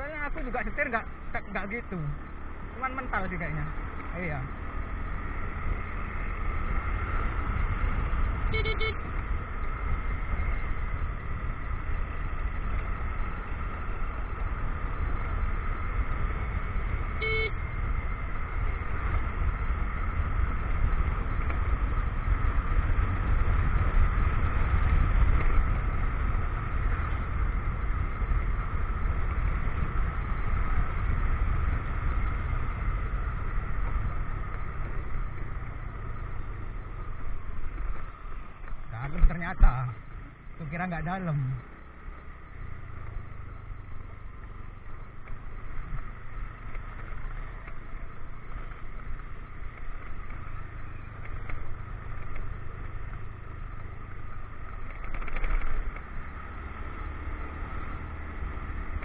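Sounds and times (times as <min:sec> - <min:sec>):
motorcycle engine running: 0:00.0 - 0:59.0
wind and road rumble: 0:00.0 - 0:59.0
horn toots: 0:08.4 - 0:09.1, 0:17.1 - 0:17.7.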